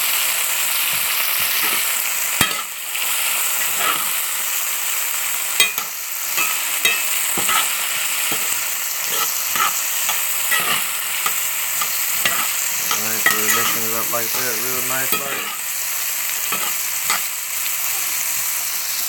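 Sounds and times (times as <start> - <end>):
potatoes sizzling in oil: 0.0 - 19.0
spoon scraping pan: 0.8 - 4.4, 5.5 - 17.4.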